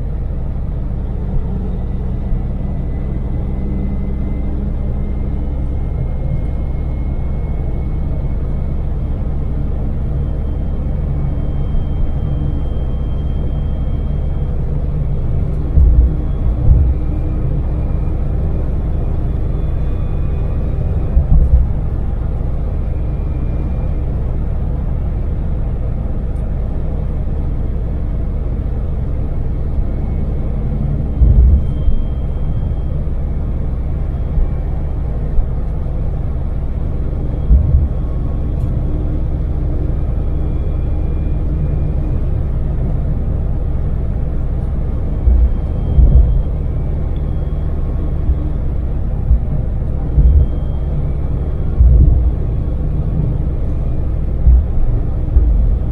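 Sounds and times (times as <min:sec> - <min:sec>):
van engine and road drone: 0:00.0 - 0:55.9
low thumps: 0:15.2 - 0:19.3, 0:20.9 - 0:22.8, 0:31.1 - 0:32.2, 0:37.2 - 0:38.8, 0:45.1 - 0:55.9.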